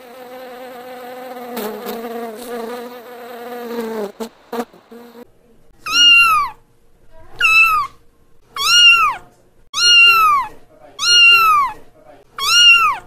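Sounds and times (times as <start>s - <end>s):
insect buzzing: 0.0s - 5.2s
kittens meowing: 5.8s - 6.6s, 7.4s - 8.0s, 8.6s - 11.8s, 12.4s - 13.0s.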